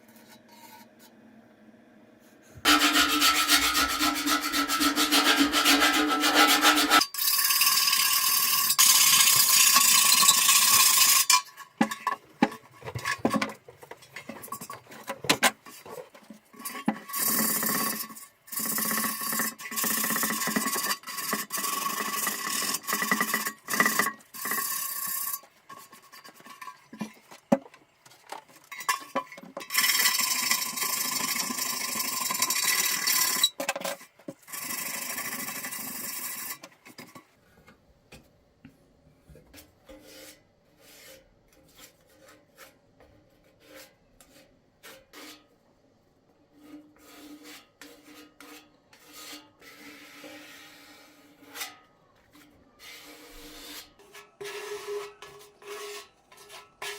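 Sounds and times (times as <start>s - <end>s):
abrasive rubbing on metal part: 2.6s - 7.1s.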